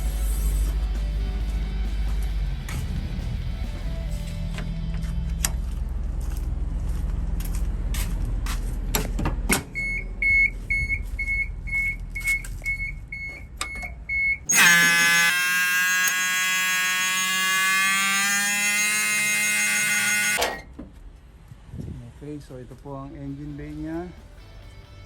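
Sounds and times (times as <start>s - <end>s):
short electronic warning beeps: 9.8s - 15.1s
loud continuous warning buzzer: 14.5s - 20.4s.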